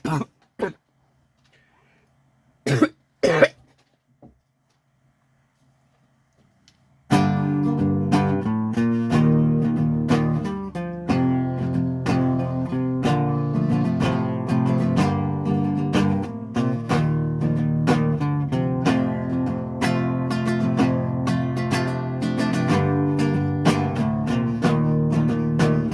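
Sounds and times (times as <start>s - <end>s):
acoustic guitar strumming: 7.1s - 25.9s.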